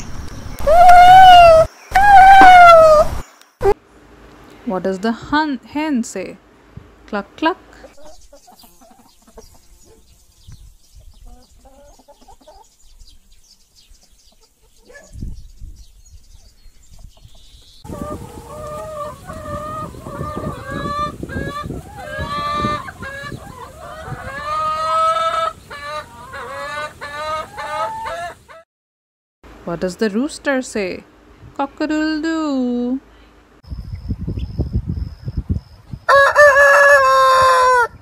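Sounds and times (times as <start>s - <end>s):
hens clucking and cackling: 0.6s - 3.8s, 7.8s - 10.1s, 11.1s - 12.7s, 17.0s - 28.6s, 36.1s - 38.0s.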